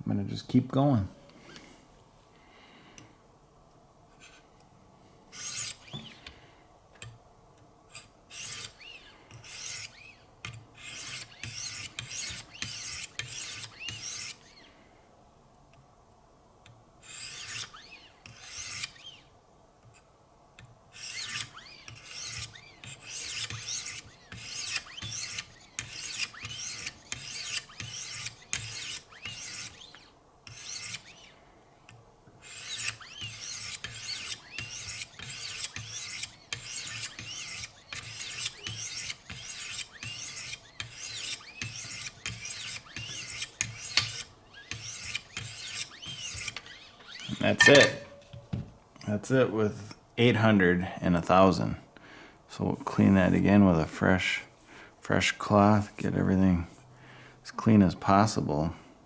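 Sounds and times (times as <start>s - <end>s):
sharpening stone rasping on knife: 5.4s - 5.8s, 7.9s - 10.1s, 10.8s - 14.4s, 17.0s - 19.1s, 20.9s - 29.8s, 30.5s - 31.2s, 32.4s - 48.3s.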